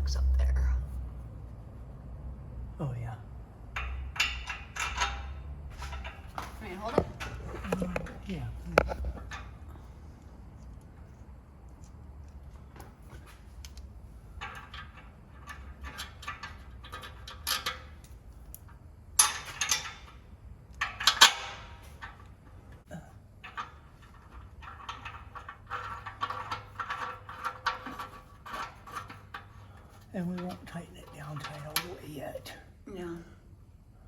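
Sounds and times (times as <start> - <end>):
loud metal clanks: 3.7 - 9.6, 19.2 - 22.5
metal clinking and scraping: 3.7 - 32.5.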